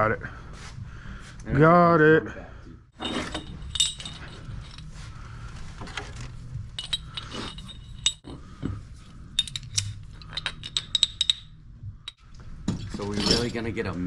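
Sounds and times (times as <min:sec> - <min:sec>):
steady low hum: 0:02.3 - 0:14.0
metal tie-downs clinking: 0:03.0 - 0:05.0, 0:05.8 - 0:11.5.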